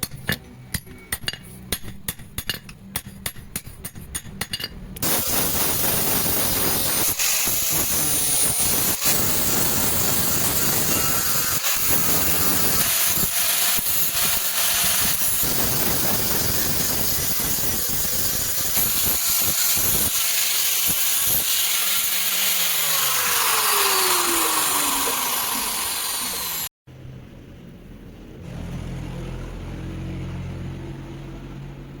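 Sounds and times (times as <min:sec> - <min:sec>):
power grinder grinding steel: 0:05.0 - 0:26.7.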